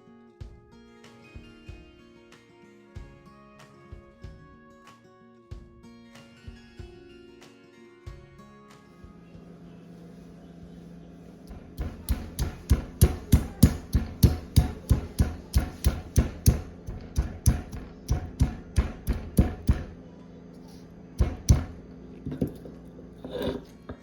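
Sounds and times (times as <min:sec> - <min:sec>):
hard rhythmic strikes: 0:11.5 - 0:20.0, 0:21.2 - 0:21.8.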